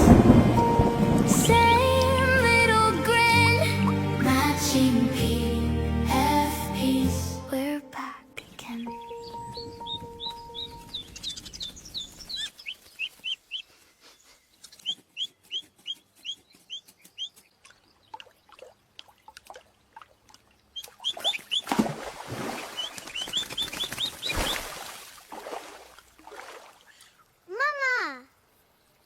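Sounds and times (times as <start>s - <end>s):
rushing noise: 0.0s - 3.2s
small bird chirping: 8.5s - 18.4s, 20.6s - 21.7s, 22.8s - 24.6s.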